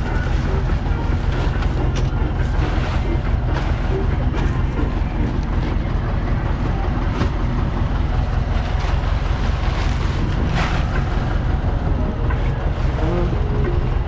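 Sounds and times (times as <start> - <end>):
farm vehicle engine rumbling: 0.0 - 14.0
wind noise on microphone: 9.7 - 14.0.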